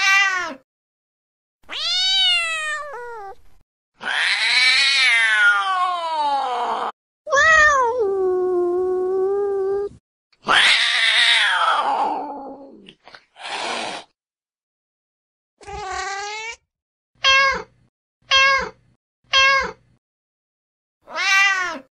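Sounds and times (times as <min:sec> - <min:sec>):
angry cat yowling: 0:00.0 - 0:00.6, 0:01.7 - 0:03.4, 0:04.0 - 0:08.1, 0:09.8 - 0:12.8, 0:21.1 - 0:21.9.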